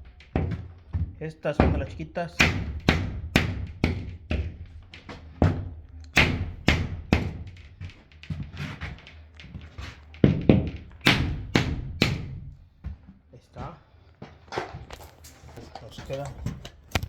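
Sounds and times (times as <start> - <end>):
hammer knocking on drywall: 0.3 - 8.0, 10.2 - 12.6.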